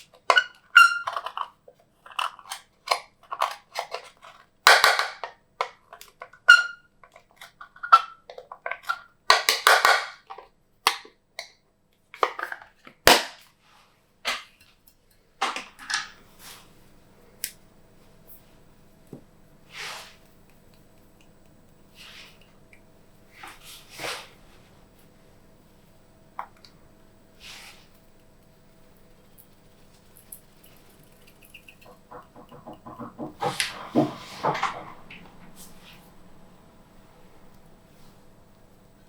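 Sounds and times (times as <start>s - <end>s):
faint steady hum: 14.8s - 39.0s.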